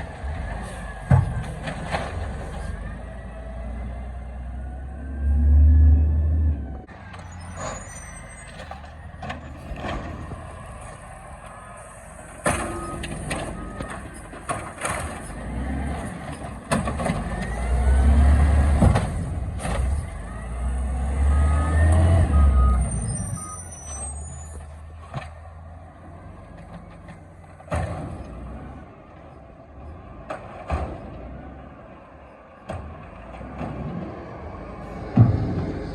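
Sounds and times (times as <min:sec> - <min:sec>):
garbage truck engine rumbling: 0:00.0 - 0:35.9
clanks and knocks: 0:00.6 - 0:02.8, 0:12.4 - 0:17.6, 0:26.6 - 0:28.6, 0:30.2 - 0:31.6, 0:32.6 - 0:35.9.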